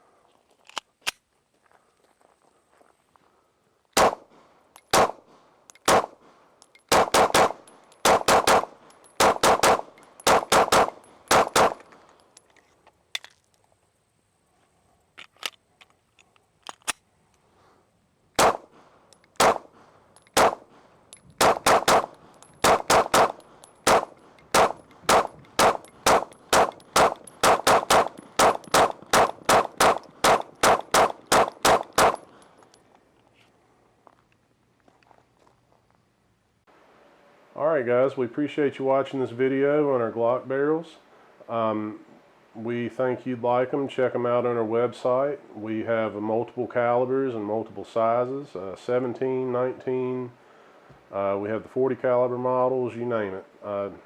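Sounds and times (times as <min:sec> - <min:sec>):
pistol gunshots: 0:04.0 - 0:04.3, 0:04.9 - 0:06.2, 0:06.9 - 0:11.8, 0:18.4 - 0:18.7, 0:19.4 - 0:19.7, 0:20.4 - 0:20.7, 0:21.4 - 0:32.3.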